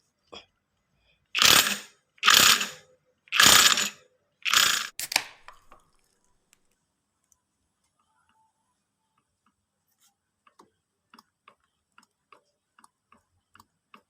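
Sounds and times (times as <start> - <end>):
harsh ratcheting mechanical strokes: 1.4 - 5.0.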